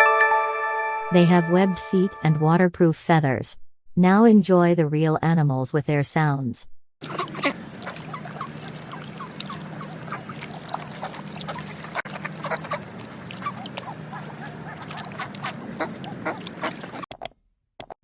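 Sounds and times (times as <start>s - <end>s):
ducks quacking: 7.0s - 17.1s
steady low hum: 7.2s - 17.0s.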